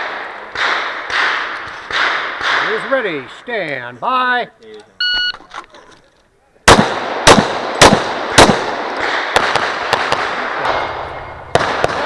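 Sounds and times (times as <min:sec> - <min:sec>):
faint gunshot cracks with echo: 0:00.0 - 0:02.8, 0:06.7 - 0:12.0
pistol shots: 0:00.0 - 0:02.9, 0:06.7 - 0:12.0.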